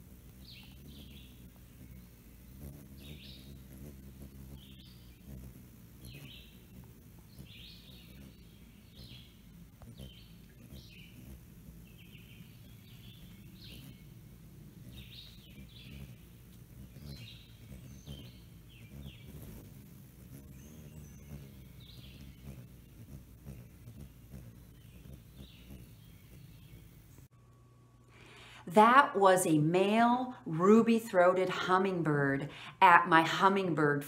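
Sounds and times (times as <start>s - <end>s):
high bird chirps: 0.3s - 27.3s.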